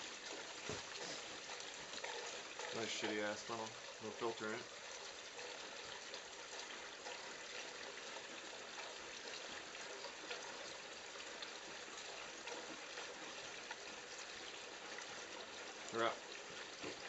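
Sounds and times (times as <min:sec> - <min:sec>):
fuel pouring through a funnel: 0:00.0 - 0:17.0.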